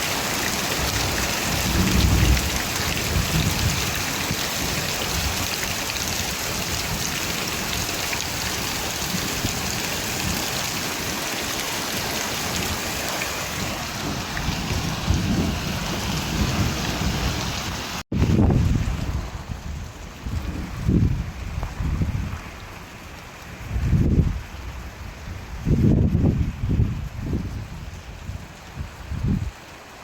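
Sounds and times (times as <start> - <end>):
heavy rain: 0.0 - 30.0
low rumbling thunder: 0.7 - 10.6, 13.5 - 22.9.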